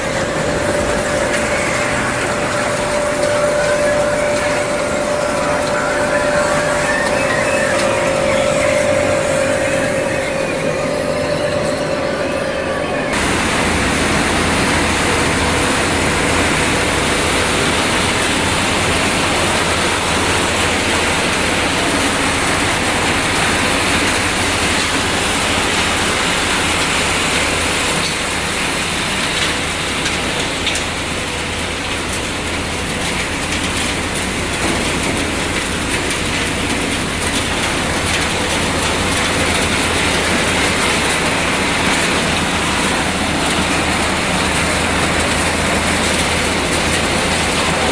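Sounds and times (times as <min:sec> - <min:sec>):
low hum: 0:00.0 - 0:23.1
machinery din: 0:00.0 - 0:28.2.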